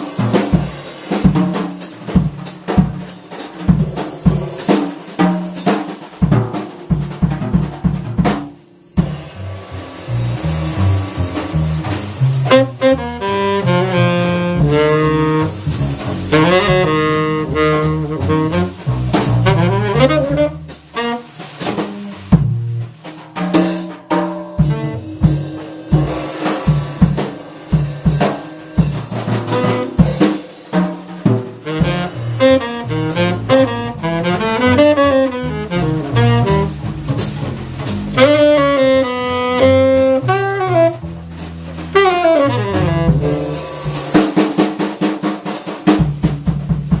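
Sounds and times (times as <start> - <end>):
drum kit: 0.0 - 47.0
walking upright bass: 9.0 - 26.2, 28.8 - 30.2, 31.4 - 44.2
tenor saxophone melody: 10.1 - 22.4, 24.6 - 26.2, 28.1 - 30.2, 31.6 - 37.2, 38.2 - 41.1, 41.9 - 44.0.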